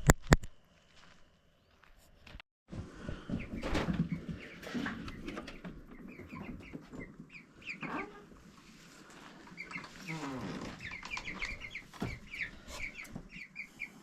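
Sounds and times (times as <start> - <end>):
chickens clucking: 3.0 - 14.0.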